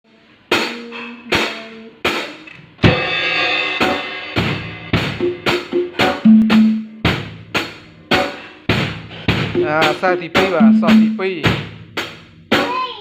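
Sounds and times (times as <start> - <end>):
drum kit strikes: 0.5 - 12.9.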